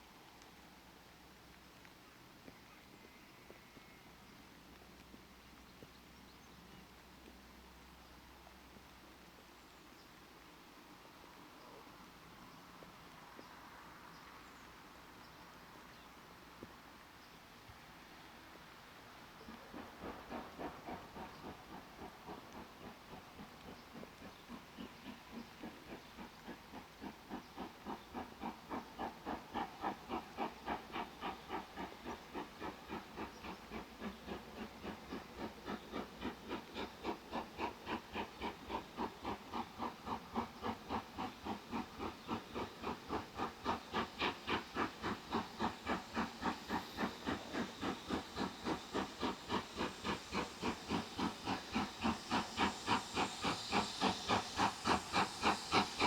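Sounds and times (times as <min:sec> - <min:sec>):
steam locomotive chuffing: 0:18.1 - 0:56.0.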